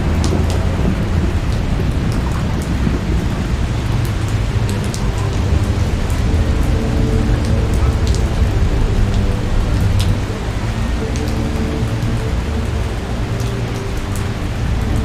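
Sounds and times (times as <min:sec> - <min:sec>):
raindrops ticking: 0:00.0 - 0:15.0
steady rain: 0:00.0 - 0:15.0.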